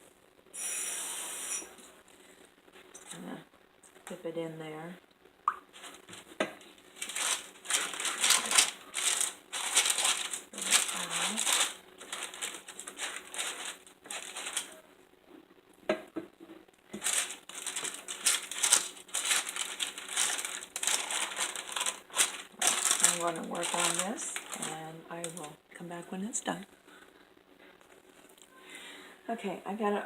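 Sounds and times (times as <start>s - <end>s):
paper crinkling: 5.7s - 14.9s, 16.9s - 25.6s.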